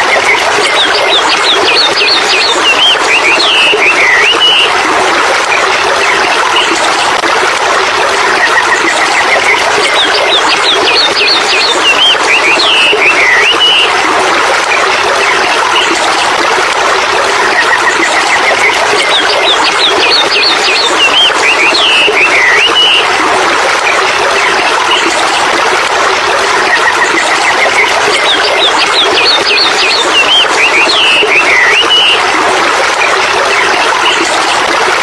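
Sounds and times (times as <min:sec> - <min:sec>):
running water: 0:00.0 - 0:35.0
birds chirping and trilling: 0:00.6 - 0:04.7, 0:09.9 - 0:13.9, 0:28.2 - 0:32.2.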